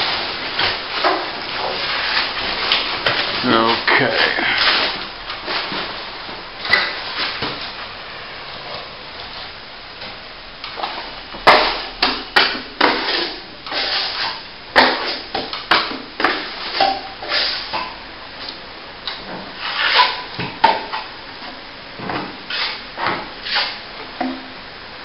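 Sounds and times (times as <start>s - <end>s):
trowel scraping plaster: 12.8s - 15.3s.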